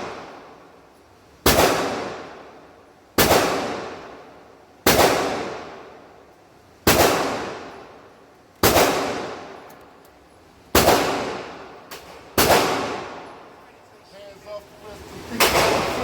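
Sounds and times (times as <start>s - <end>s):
handgun shots echoing: 10.8s - 13.2s.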